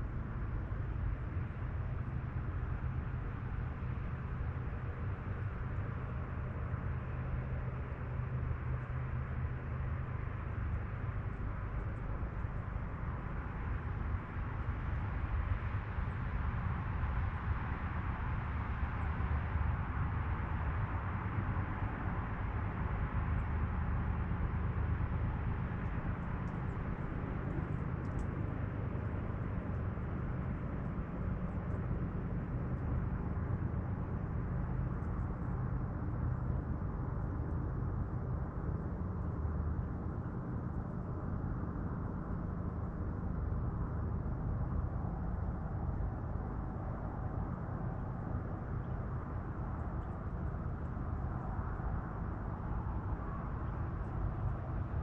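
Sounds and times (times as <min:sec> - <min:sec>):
faint high ticks: 0:28.0 - 0:28.4.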